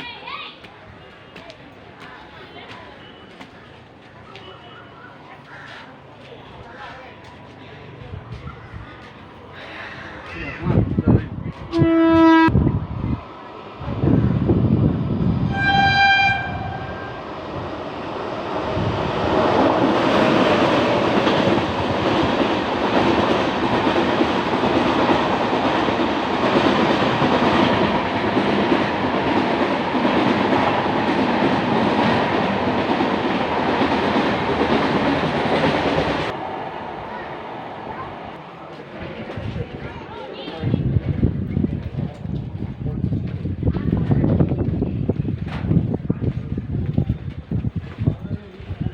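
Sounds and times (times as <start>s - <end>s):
train horn: 11.7s - 12.6s, 15.4s - 17.3s.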